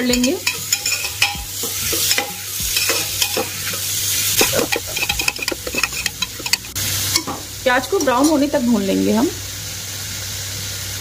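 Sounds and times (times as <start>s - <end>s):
onions sizzling in oil: 0.0s - 11.0s
metal spoon scraping pot: 0.1s - 7.3s.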